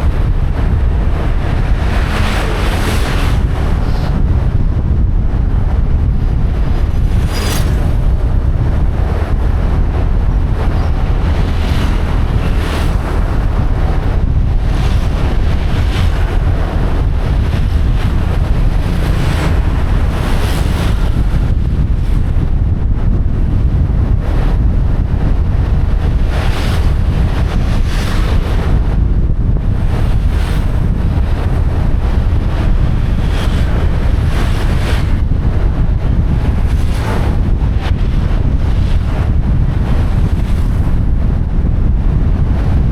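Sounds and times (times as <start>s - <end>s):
motorcycle engine: 0.0s - 22.4s
wind buffeting microphone: 0.0s - 42.9s.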